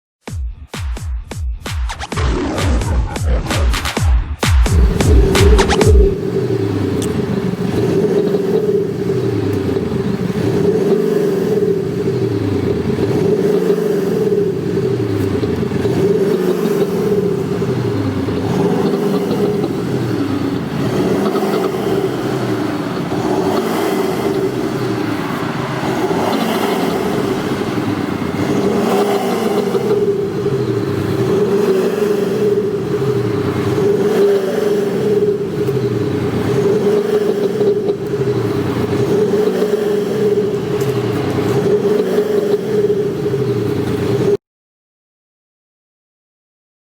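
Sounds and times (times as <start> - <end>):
car engine revving: 1.9 - 44.4
synthetic engine note: 2.1 - 6.4
steady hum: 4.6 - 6.2.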